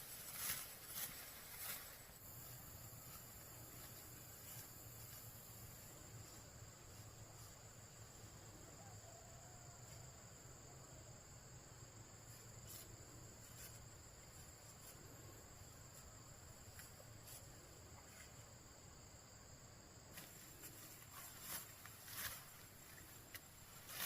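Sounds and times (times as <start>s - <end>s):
rustling: 0.0s - 7.5s, 20.1s - 24.0s
insects chirring: 0.0s - 24.0s.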